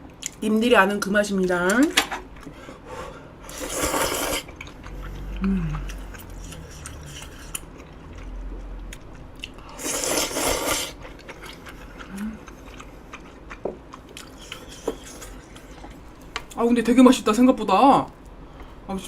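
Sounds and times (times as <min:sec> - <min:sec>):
person chewing food: 0:02.2 - 0:16.6
short low hum: 0:04.5 - 0:09.8.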